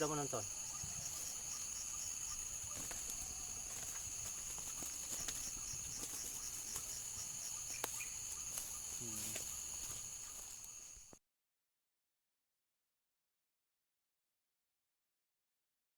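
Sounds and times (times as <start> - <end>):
insect chorus trilling: 0.0 - 11.2.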